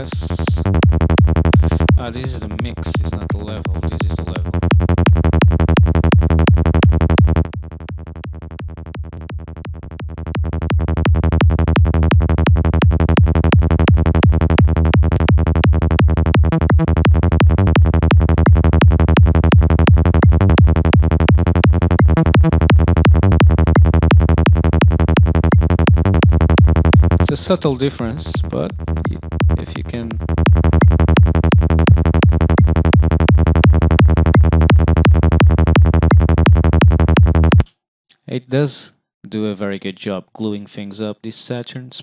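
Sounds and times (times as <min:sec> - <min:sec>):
synth bass pulses: 0:00.0 - 0:37.6
kick drum: 0:00.8 - 0:02.0, 0:04.4 - 0:27.3, 0:28.7 - 0:29.6, 0:30.2 - 0:37.7.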